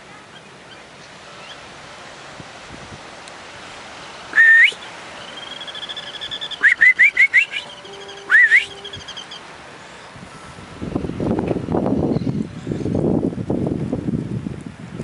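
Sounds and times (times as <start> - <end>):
birds whistling rising notes: 4.3 - 10.2, 11.9 - 12.6
faint bird trill: 5.2 - 10.5.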